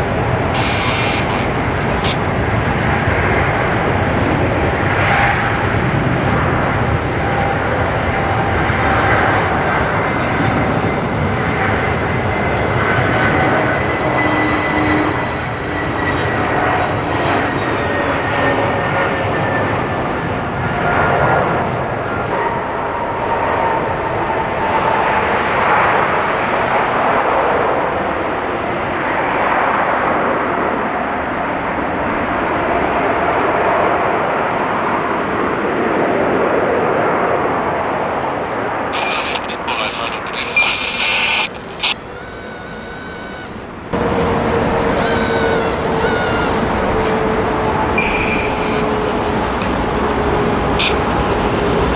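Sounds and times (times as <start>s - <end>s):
steady rushing noise: 0.0s - 13.5s, 37.7s - 51.9s
jet engines whining: 0.0s - 51.9s.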